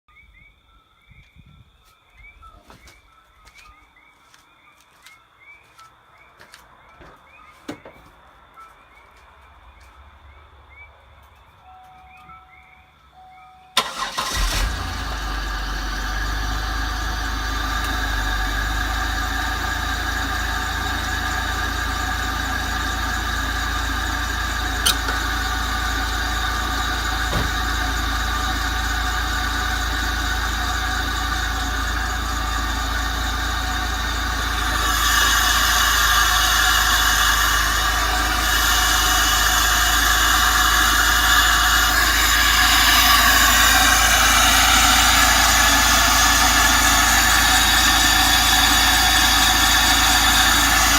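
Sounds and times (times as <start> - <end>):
car engine idling: 13.0 - 50.9
car engine cranking: 13.7 - 50.9.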